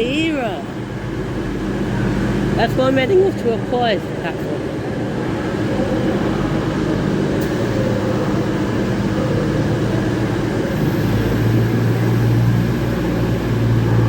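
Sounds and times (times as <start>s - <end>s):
train diesel engines droning: 0.0s - 14.0s
deeper engine note: 4.4s - 14.0s.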